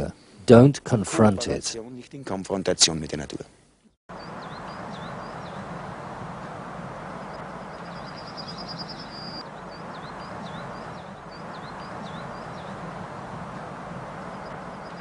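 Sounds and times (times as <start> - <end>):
outdoor ambience hiss: 0.0 - 15.0
songbird trilling and whistling: 7.7 - 12.8.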